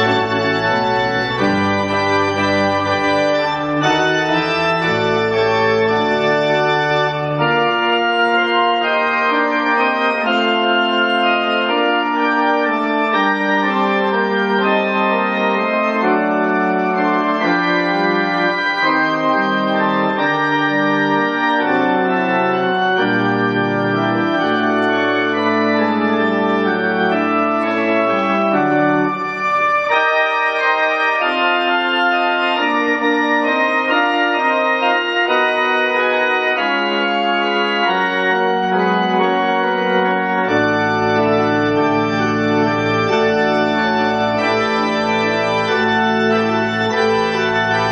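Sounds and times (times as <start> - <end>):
church organ chords: 0.0 - 47.9.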